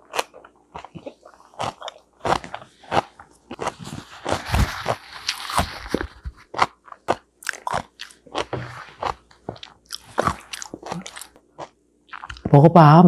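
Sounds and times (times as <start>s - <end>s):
crunchy chewing: 0.0s - 12.5s
paper tissue rustling: 3.8s - 6.5s.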